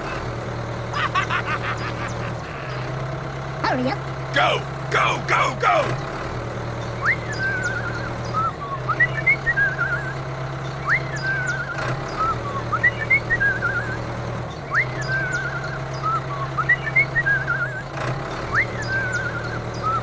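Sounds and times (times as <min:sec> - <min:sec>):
whistle-like chirps: 0:06.9 - 0:10.2, 0:10.8 - 0:17.9, 0:18.5 - 0:20.0.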